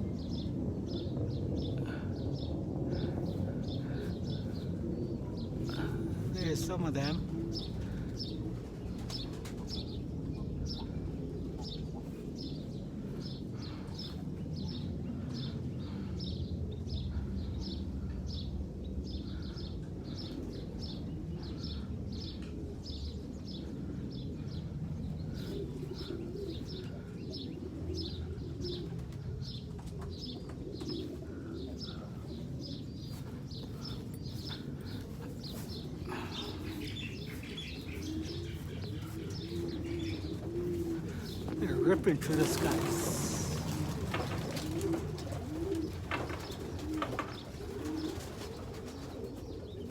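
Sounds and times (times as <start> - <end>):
pigeons cooing: 0.0 - 49.9
bird chirping: 32.6 - 43.8.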